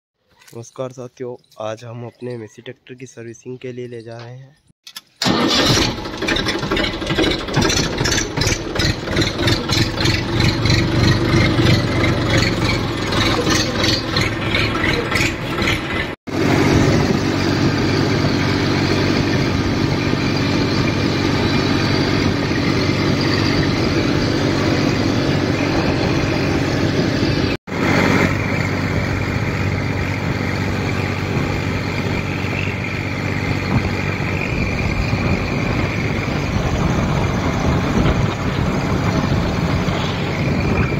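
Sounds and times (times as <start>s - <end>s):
tractor diesel engine running: 5.2s - 40.9s.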